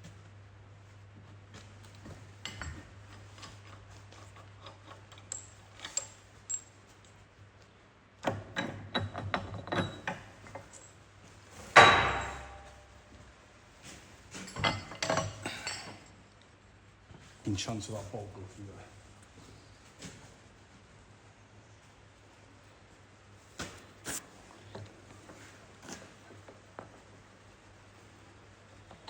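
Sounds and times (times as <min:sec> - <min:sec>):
metal tools clinking and knocking: 0:08.6 - 0:10.9, 0:11.8 - 0:12.8, 0:14.3 - 0:16.1.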